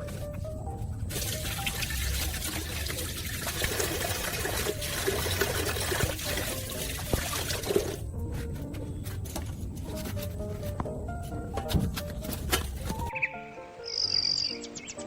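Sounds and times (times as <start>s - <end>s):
water trickling and pouring: 0.9s - 8.0s.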